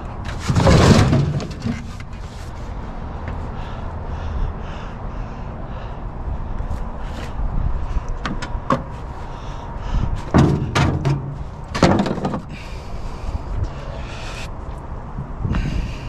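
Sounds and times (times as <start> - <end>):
scrap metal knocks and bangs: 0.0 - 2.3, 10.2 - 12.6.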